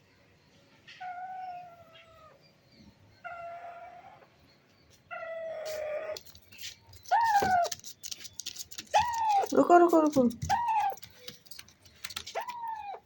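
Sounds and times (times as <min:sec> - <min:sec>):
parrot calling: 0:07.0 - 0:07.7, 0:10.4 - 0:11.3.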